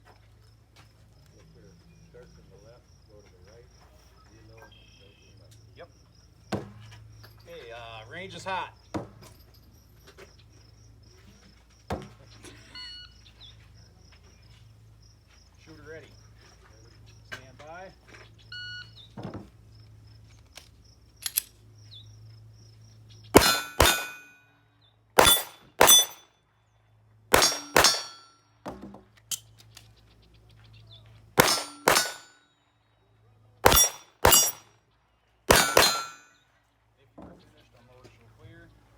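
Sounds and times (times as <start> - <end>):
pistol shots: 23.4 - 24.4, 25.2 - 26.2, 27.3 - 28.3, 31.4 - 32.4, 33.6 - 34.6, 35.5 - 36.3
steel plate clanging: 23.4 - 24.4, 25.2 - 26.2, 27.4 - 28.3, 31.4 - 32.3, 33.7 - 34.6, 35.5 - 36.3.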